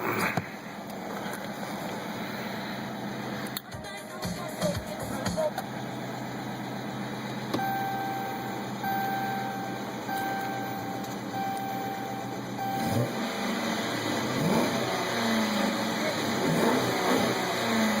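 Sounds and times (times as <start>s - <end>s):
car engine idling and revving: 0.0s - 18.0s
electronic chime beeping: 7.6s - 13.0s.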